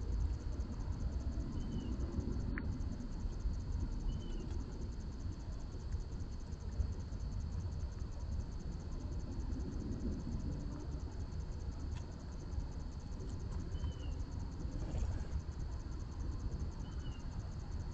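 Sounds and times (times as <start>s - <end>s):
crickets trilling: 0.0s - 17.9s
faint bird chirps: 1.5s - 2.0s, 4.1s - 4.5s, 13.7s - 14.2s, 16.8s - 17.3s.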